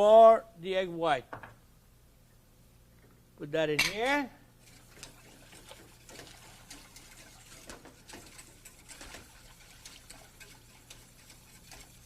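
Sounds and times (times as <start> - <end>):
whisk scraping a saucepan: 4.6 - 12.0.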